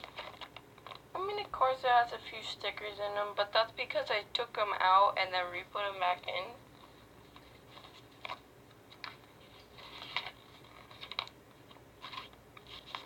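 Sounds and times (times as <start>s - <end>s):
book pages turning: 0.0s - 1.0s, 6.2s - 13.0s.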